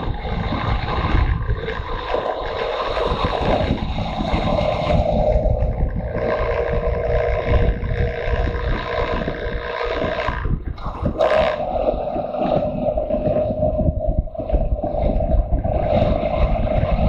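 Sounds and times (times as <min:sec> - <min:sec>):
motorcycle engine: 0:00.0 - 0:17.0
wind buffeting microphone: 0:00.0 - 0:17.0.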